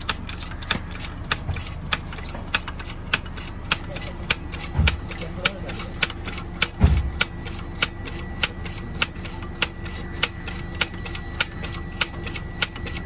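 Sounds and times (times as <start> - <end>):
mechanical ticking: 0.0 - 13.0
low thump: 6.8 - 7.2.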